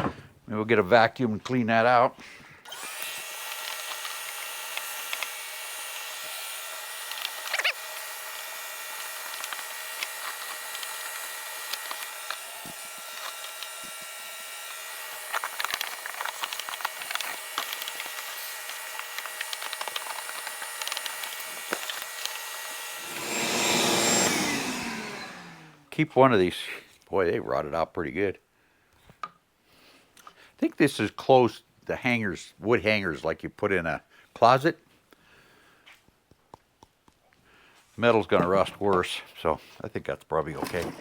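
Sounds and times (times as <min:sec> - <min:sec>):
vacuum cleaner whining: 0:02.7 - 0:25.9.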